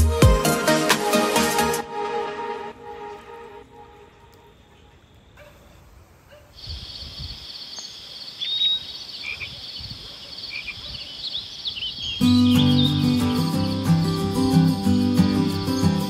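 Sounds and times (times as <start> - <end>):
background music with bass: 0.0 - 3.7, 12.2 - 16.0
bird chirps: 6.6 - 16.0
insects chirping in chorus: 6.6 - 16.0.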